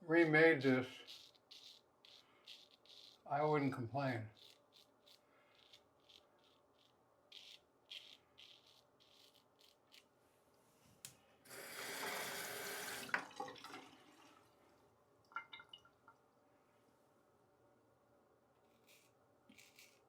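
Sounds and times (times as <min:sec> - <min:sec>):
water tap running into sink: 0:11.5 - 0:14.5
water drips: 0:13.0 - 0:16.2
soft scraping strokes: 0:18.6 - 0:20.0.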